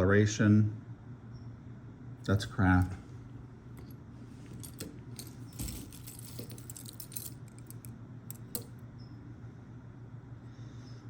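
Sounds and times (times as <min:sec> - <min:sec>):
metal jewelry clinking: 0:02.4 - 0:08.8.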